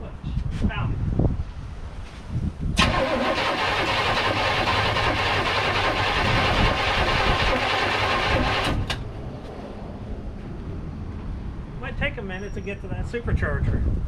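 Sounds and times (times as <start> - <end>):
starter motor cranking engine: 2.8 - 9.0.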